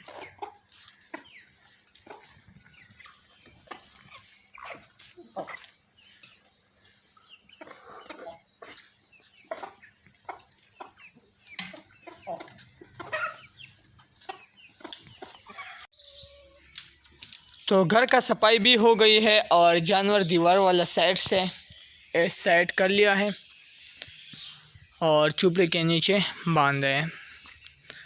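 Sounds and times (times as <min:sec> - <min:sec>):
chickens clucking: 0:00.0 - 0:17.6.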